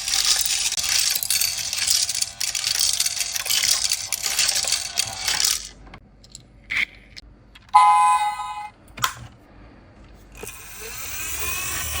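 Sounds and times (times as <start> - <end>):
electronic beep: 7.8 - 8.7.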